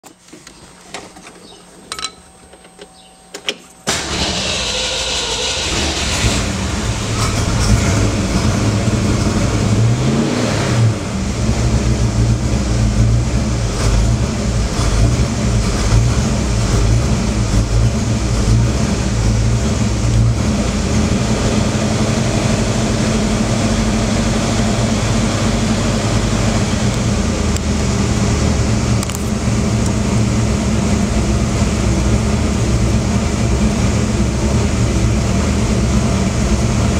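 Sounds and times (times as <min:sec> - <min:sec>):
starter cranking engine: 0:03.9 - 0:09.3
car engine revving and idling: 0:03.9 - 0:36.9.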